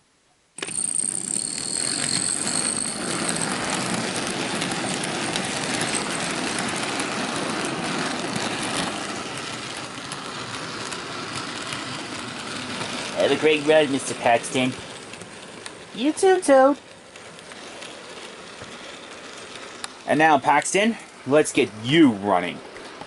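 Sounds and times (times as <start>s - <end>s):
high whine: 0.6s - 10.6s
model train motor whir: 0.6s - 21.6s.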